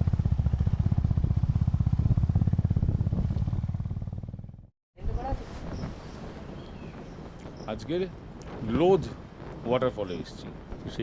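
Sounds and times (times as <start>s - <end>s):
motorcycle engine running: 0.0s - 4.7s.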